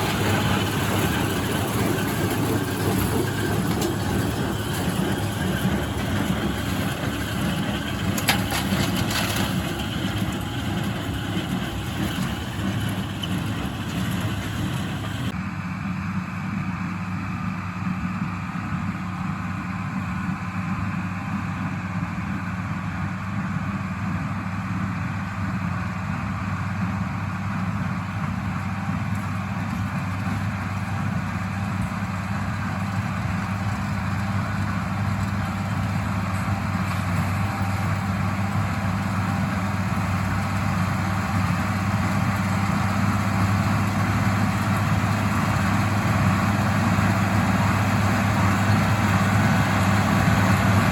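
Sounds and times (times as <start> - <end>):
small square baler: 0.0 - 15.4, 27.4 - 50.9
tractor diesel engine running: 0.0 - 50.9.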